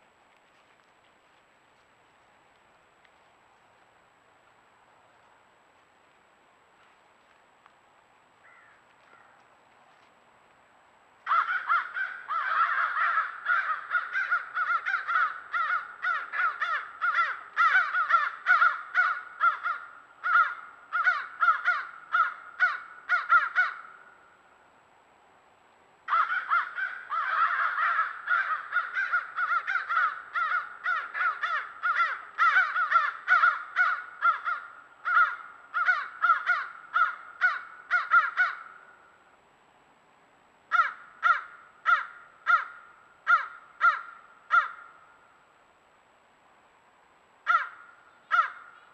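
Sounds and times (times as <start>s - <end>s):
crows cawing: 8.4s - 9.4s, 11.2s - 24.2s, 26.1s - 39.0s, 40.7s - 45.2s, 47.4s - 48.9s.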